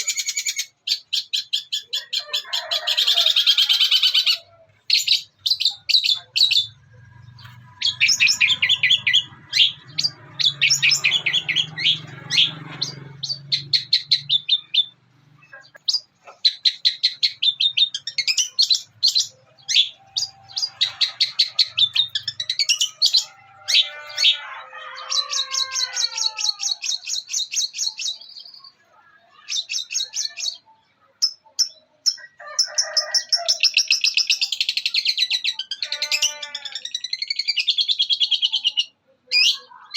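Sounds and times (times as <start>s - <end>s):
shrike chattering song: 3.2s - 32.2s.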